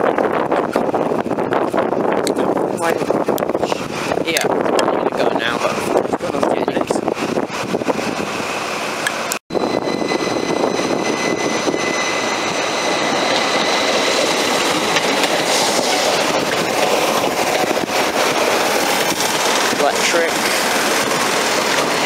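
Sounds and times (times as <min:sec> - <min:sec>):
train rumble and wheel noise: 0:00.0 - 0:22.0
faint high whine: 0:09.5 - 0:21.8.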